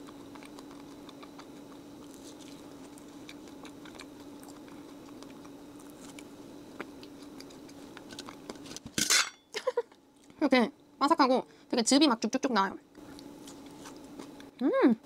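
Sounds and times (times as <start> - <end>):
crunchy chewing: 0.0 - 8.8, 13.0 - 14.6
steady low hum: 0.0 - 15.0.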